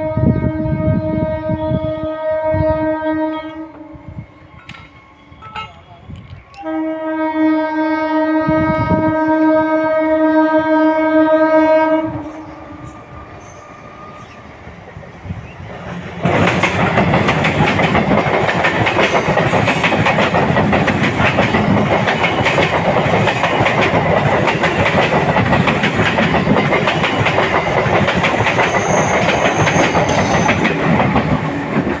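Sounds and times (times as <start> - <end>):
train wheels clattering over rails: 14.2 - 32.0.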